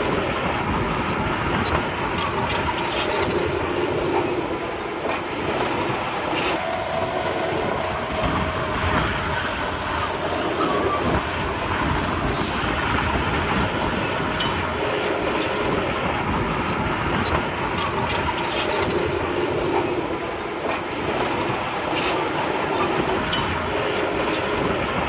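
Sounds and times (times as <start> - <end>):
bulldozer diesel engine running: 0.0 - 25.0
metallic clanks from steel tracks: 0.0 - 25.0.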